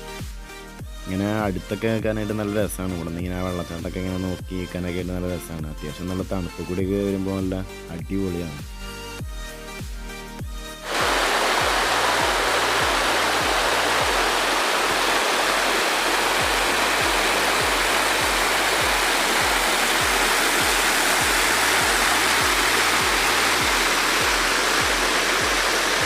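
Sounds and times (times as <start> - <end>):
music with low kick beat: 0.0 - 26.0
waterfall rushing: 10.9 - 26.0.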